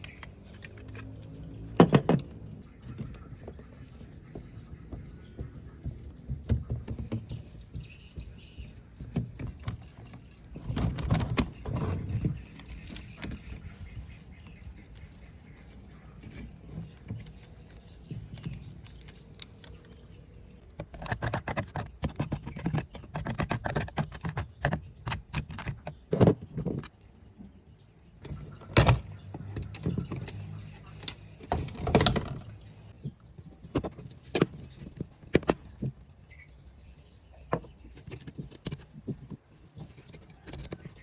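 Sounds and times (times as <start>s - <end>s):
tools and parts clattering: 9.0s - 13.4s, 28.2s - 32.6s.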